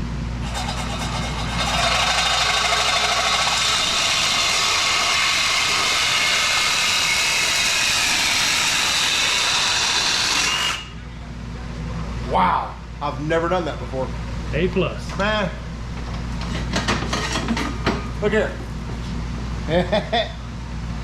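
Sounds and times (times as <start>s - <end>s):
power saw cutting metal pipe: 0.4s - 10.9s.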